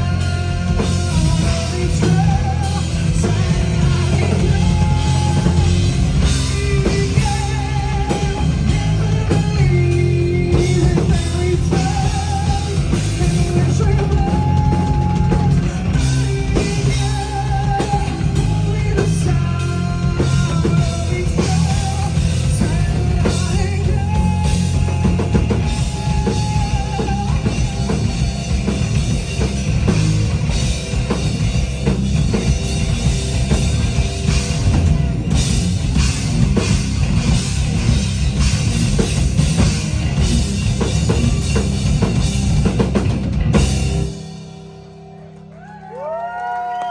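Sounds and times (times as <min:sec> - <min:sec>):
person singing: 0:00.0 - 0:28.9
drum kit pounding: 0:00.0 - 0:45.3
electric guitar: 0:00.0 - 0:46.9.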